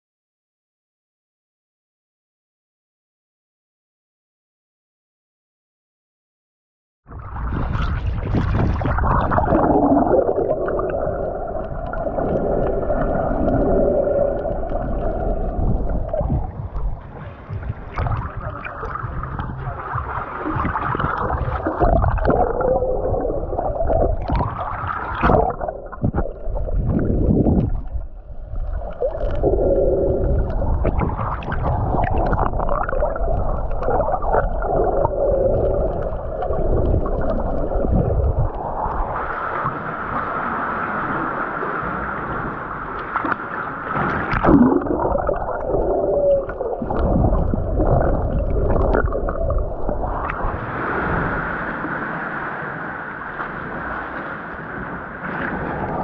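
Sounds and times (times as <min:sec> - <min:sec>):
underwater water sloshing: 0:07.2 - 0:41.1, 0:41.7 - 0:56.0
wavering low tones: 0:09.3 - 0:38.6.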